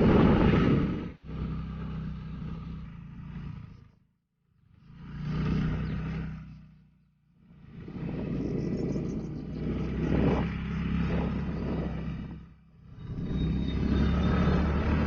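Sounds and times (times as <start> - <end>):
wind noise on microphone: 0.0 - 1.5, 7.8 - 15.0
motorcycle running: 0.0 - 15.0.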